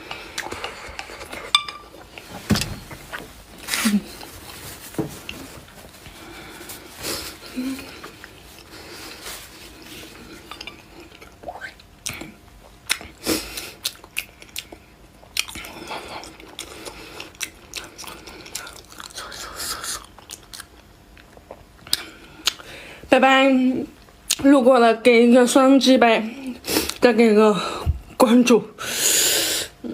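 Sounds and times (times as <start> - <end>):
person chewing food: 0.0 - 2.3, 5.2 - 22.7.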